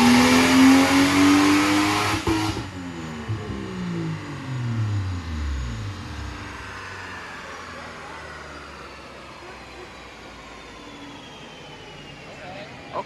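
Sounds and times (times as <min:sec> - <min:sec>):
car engine revs falling: 0:00.0 - 0:09.4
thin whine gliding down: 0:02.2 - 0:13.0
steady rushing noise: 0:02.7 - 0:08.0.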